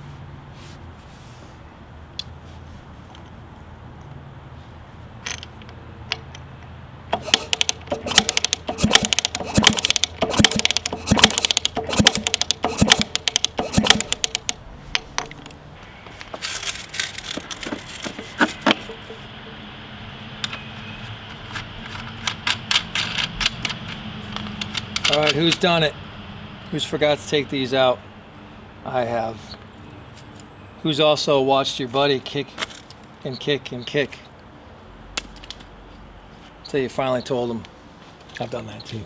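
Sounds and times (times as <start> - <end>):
motorcycle kick-starter clatter: 5.2 - 19.6, 20.4 - 25.9, 32.6 - 33.1.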